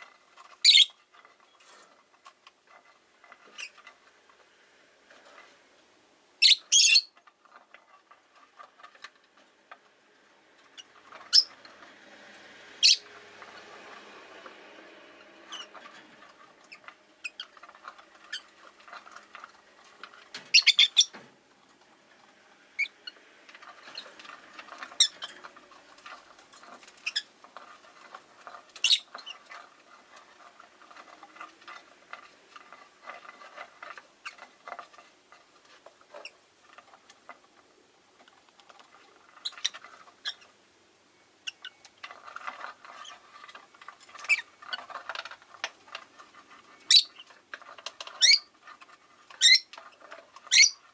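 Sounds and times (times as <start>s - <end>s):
lovebirds chirping: 0.6s - 1.0s, 6.4s - 7.2s, 12.8s - 13.1s, 20.5s - 21.2s, 28.8s - 29.4s, 46.8s - 47.3s, 49.4s - 49.7s, 50.5s - 50.8s
shrill bird squeaks: 0.6s - 1.0s, 6.4s - 7.1s, 12.8s - 13.0s, 20.5s - 21.1s, 28.8s - 29.1s, 48.2s - 48.5s, 49.4s - 49.7s, 50.5s - 50.8s.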